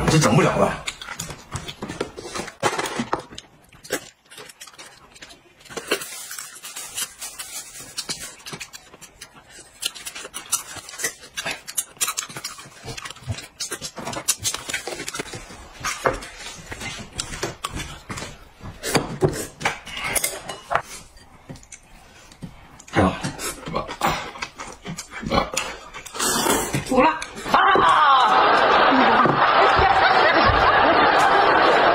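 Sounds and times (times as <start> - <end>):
eating noises: 3.3 - 27.6.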